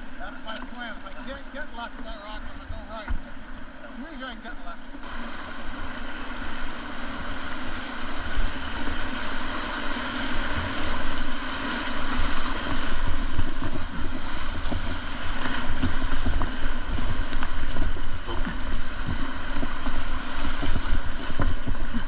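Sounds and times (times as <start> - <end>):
whitewater rushing: 0.0 - 22.0
wind buffeting microphone: 6.8 - 22.0.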